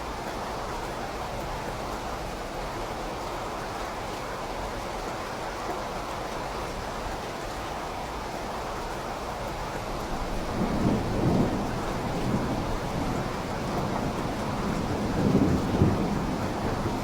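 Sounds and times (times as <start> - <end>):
steady rain: 0.0 - 17.0
low rolling thunder: 10.1 - 17.0.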